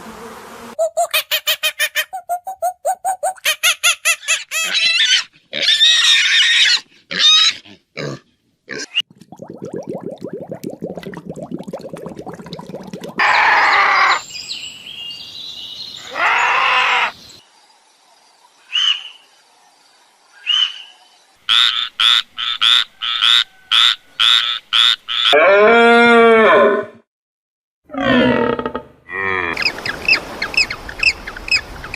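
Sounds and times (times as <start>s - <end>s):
animal calls: 13.2s - 14.2s, 16.0s - 17.2s.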